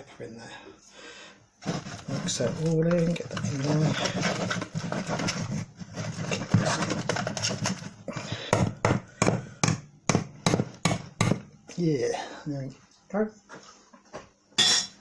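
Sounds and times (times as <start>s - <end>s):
utensil scraping and stirring in bowl: 1.6s - 8.5s.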